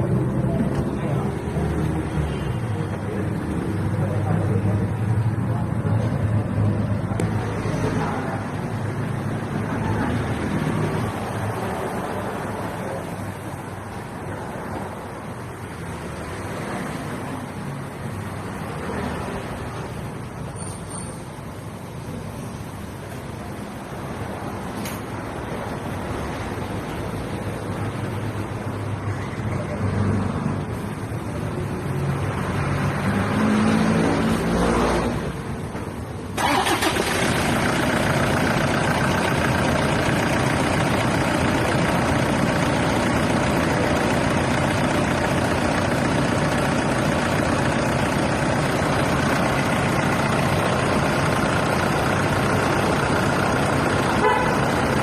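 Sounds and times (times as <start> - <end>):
car engine running: 36.4 - 55.0.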